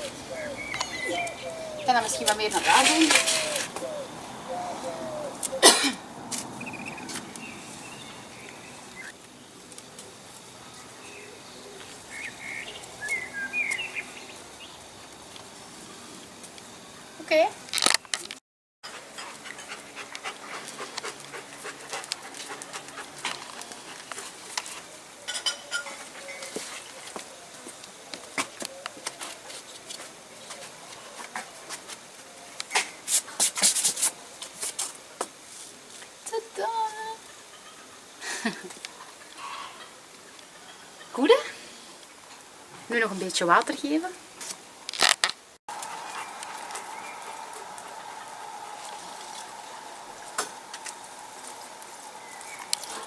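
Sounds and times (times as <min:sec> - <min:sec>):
soil scraping: 0:00.0 - 0:04.0
hands rustling potting soil: 0:00.0 - 0:05.6, 0:32.8 - 0:37.1
small birds chirping: 0:00.0 - 0:05.7, 0:06.3 - 0:15.0, 0:45.7 - 0:53.0
steady outdoor hiss: 0:00.0 - 0:53.0.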